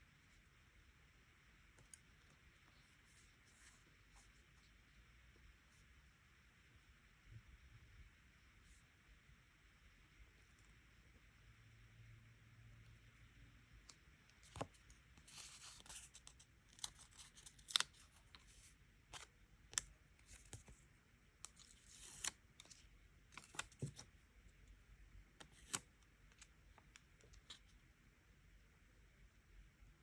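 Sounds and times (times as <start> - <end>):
paper and stickers handled: 13.9 - 24.2, 25.3 - 27.7.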